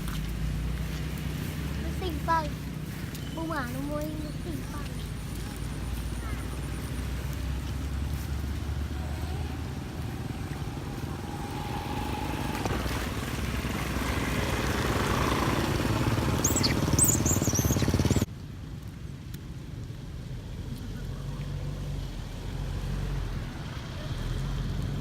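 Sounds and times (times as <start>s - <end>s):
vehicle engine whining: 0.0s - 18.3s.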